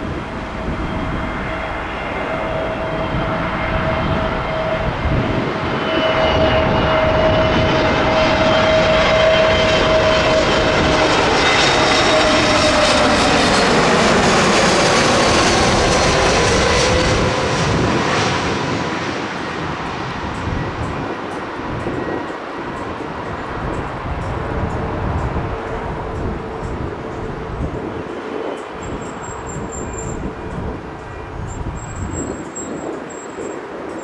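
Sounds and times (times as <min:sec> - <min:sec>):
airliner engines roaring overhead: 0:00.0 - 0:34.0.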